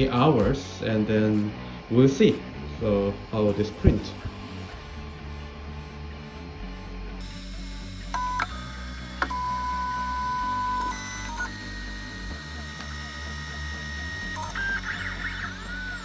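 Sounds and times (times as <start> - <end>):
stepper motors whining: 0.0 - 16.0
sharp clicks: 7.2 - 16.0.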